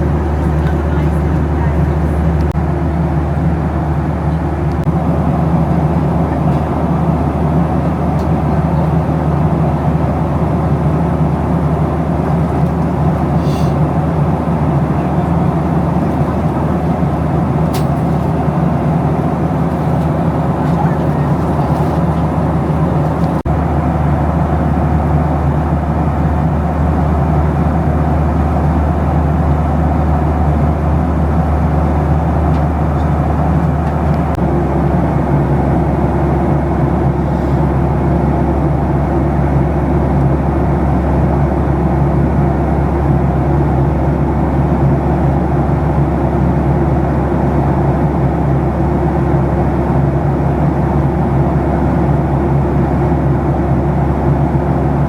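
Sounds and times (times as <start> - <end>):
aircraft cabin engine drone: 0.0 - 55.0
airflow rushing: 4.8 - 24.6.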